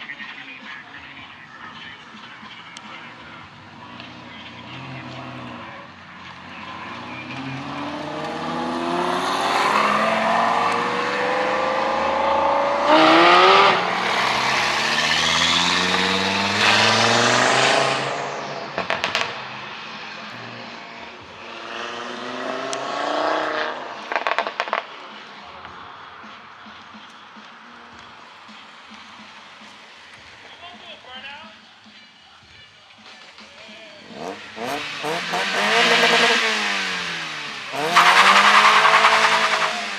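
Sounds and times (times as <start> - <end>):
car engine revving: 2.8 - 26.0, 34.0 - 39.9
second car revving: 2.8 - 26.0, 34.0 - 39.9.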